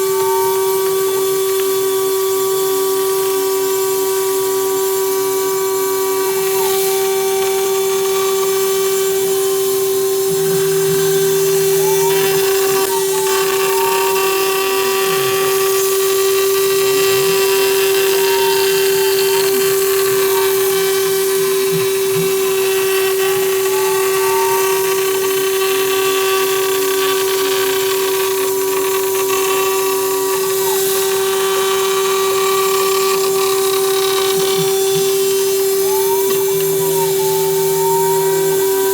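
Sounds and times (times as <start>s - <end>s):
machine whines rising and falling: 0.0s - 24.2s
cutting hiss: 0.0s - 38.9s
router spindle high tone: 0.0s - 38.9s.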